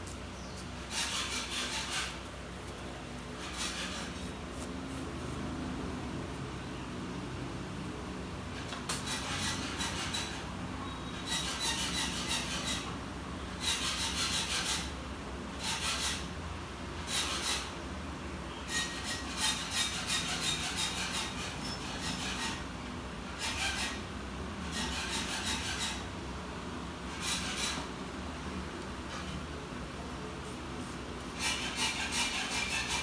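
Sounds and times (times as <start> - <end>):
scratchy rubbing on hard surface: 0.6 - 5.6, 30.4 - 33.0.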